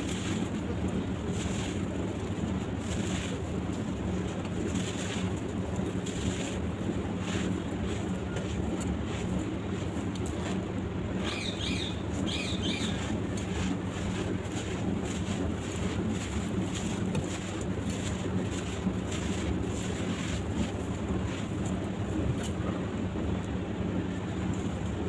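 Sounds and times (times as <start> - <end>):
bird chirps: 11.2 - 13.0.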